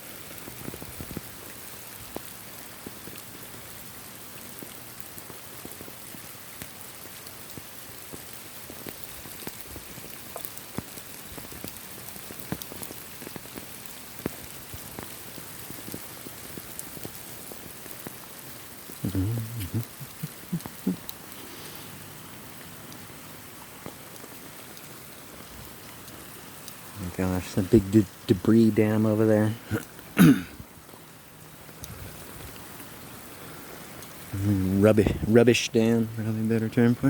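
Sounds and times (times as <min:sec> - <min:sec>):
raindrops ticking close: 0:00.0 - 0:37.0
steady rain hiss: 0:00.0 - 0:37.0.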